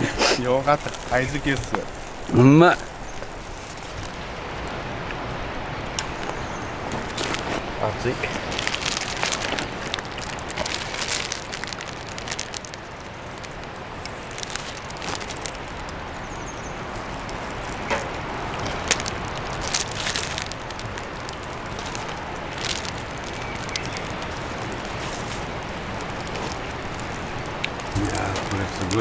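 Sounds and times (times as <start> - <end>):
beef sizzling on a grill: 0.0 - 4.3, 11.2 - 29.0.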